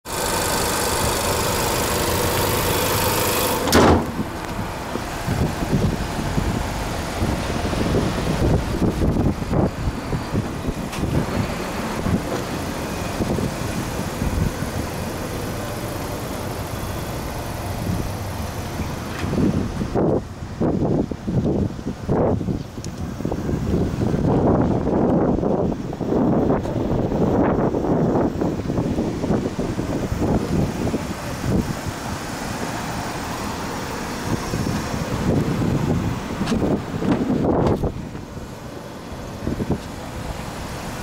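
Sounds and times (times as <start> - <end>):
car engine idling: 0.0 - 41.0
loud thump: 3.6 - 4.4
wind on the microphone: 5.2 - 12.5, 19.2 - 32.2, 34.2 - 38.5, 39.3 - 40.0.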